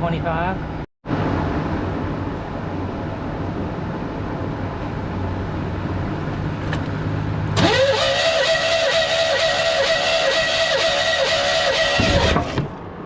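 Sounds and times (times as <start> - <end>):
engine cranking on starter: 7.6 - 12.7.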